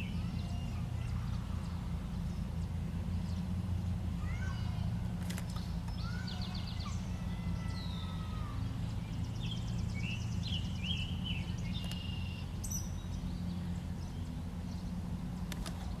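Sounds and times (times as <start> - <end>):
birds chirping and whistling: 0.0 - 3.5, 4.2 - 16.0
steady low hum: 0.0 - 16.0
sharp clicks: 11.8 - 12.1, 15.4 - 16.0.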